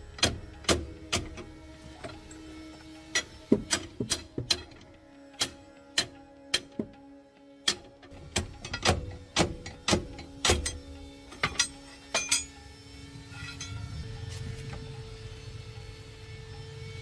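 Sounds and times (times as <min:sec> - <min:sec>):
sharp metallic knocks: 0:03.1 - 0:04.8, 0:07.7 - 0:12.6
low hum: 0:07.8 - 0:17.0.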